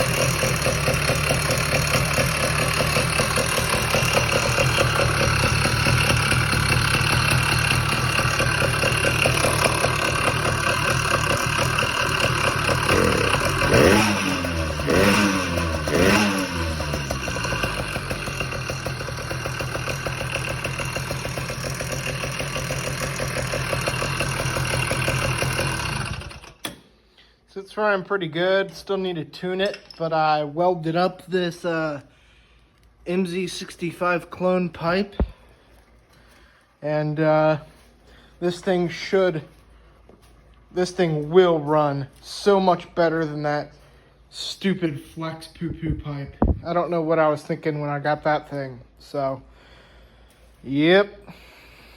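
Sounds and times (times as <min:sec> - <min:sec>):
engine throttle blips: 0:00.0 - 0:26.7
two-stroke engine idling: 0:00.0 - 0:26.7.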